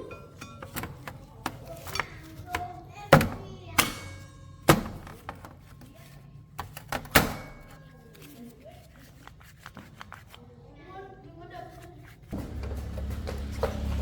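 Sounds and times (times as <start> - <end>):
hard objects knocking and clattering: 0.0 - 5.9, 6.5 - 7.9.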